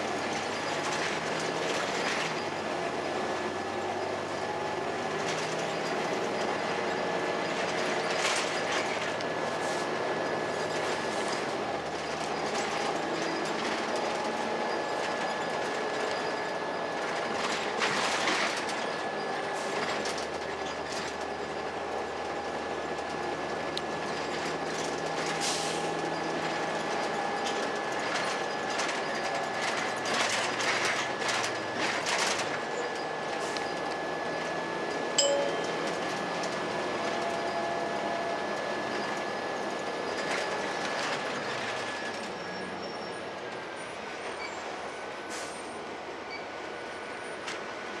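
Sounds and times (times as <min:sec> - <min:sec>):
bus diesel engine running: 0:00.0 - 0:48.0
steady high tone: 0:35.2 - 0:36.5.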